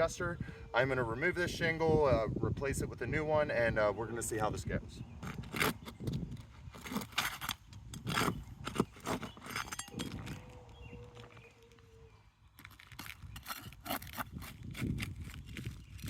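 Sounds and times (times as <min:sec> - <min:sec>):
roof shingle scraping and cracking: 0:05.2 - 0:11.8, 0:12.5 - 0:16.0.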